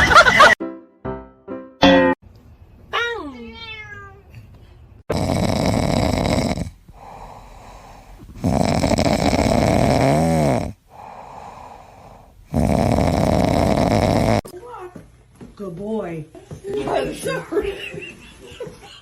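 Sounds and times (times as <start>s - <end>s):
pet snoring loudly: 5.1s - 14.5s.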